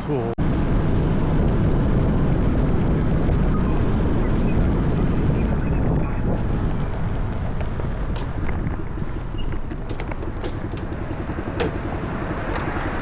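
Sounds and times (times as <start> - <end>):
wind on microphone: 0.4 - 13.0
motorcycle engine running: 6.4 - 13.0.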